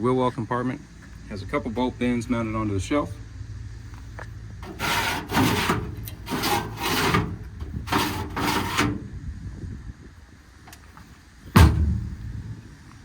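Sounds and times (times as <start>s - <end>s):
short rubbing scrapes: 4.6s - 9.0s.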